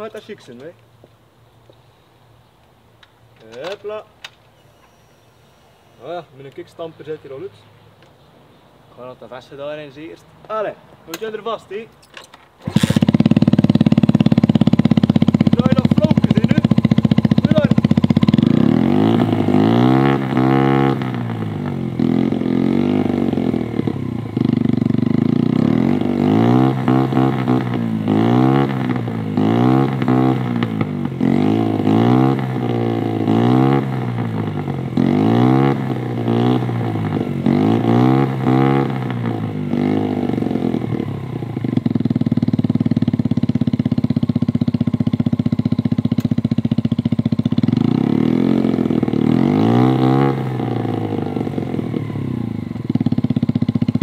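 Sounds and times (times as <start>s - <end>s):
motorbike engine revving: 12.6s - 54.0s.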